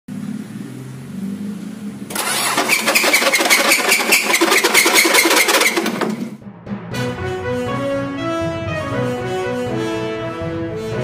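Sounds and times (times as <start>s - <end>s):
diesel engine running: 0.1s - 6.4s
rapid metallic engine knocking: 2.1s - 6.4s.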